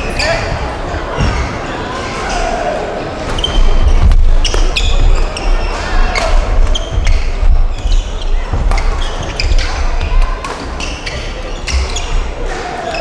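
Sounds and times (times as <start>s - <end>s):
shoes squeaking on court floor: 0.0s - 13.0s
rackets striking shuttlecock: 3.2s - 12.1s.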